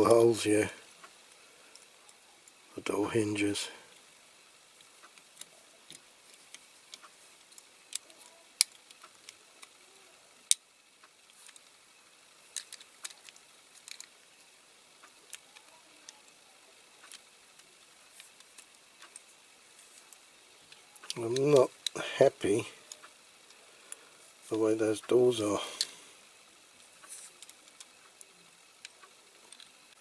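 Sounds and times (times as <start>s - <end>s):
toy car parts clicking: 4.7s - 22.0s, 26.5s - 29.9s.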